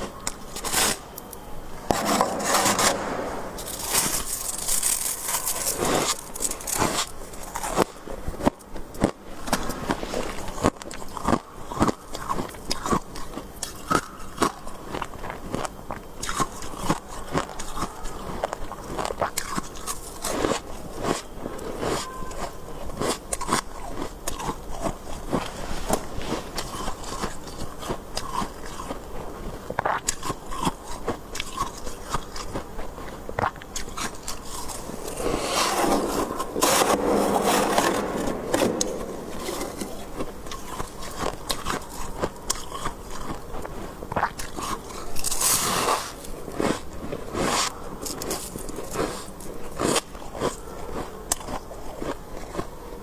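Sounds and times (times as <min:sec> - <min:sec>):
crunching freezer frost: 0:00.0 - 0:53.0
scraping: 0:01.8 - 0:06.8, 0:34.4 - 0:41.7.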